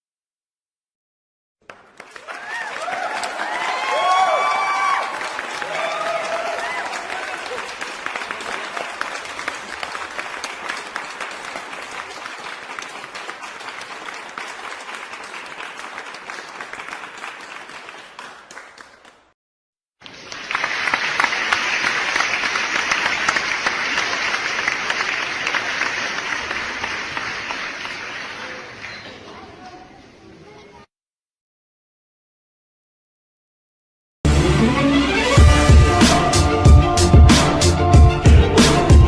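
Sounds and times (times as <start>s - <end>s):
crowd applause: 1.6s - 19.3s, 20.0s - 29.4s.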